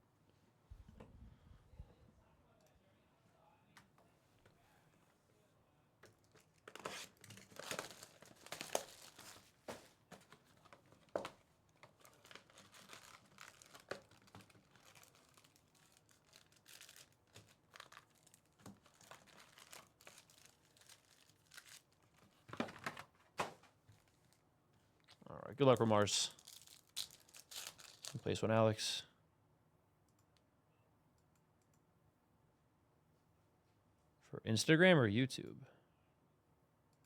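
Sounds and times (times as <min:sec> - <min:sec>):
packaging tearing and crinkling: 0:06.4 - 0:09.6, 0:11.0 - 0:23.1, 0:26.3 - 0:28.2.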